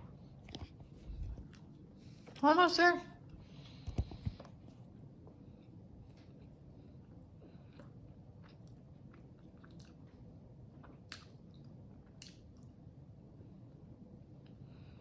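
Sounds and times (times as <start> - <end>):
person chewing food: 6.2 - 12.8.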